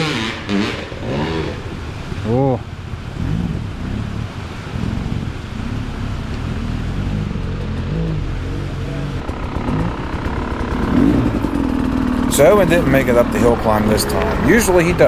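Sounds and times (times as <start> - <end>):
dirt bike engine revving: 0.0 - 2.2, 6.6 - 15.0.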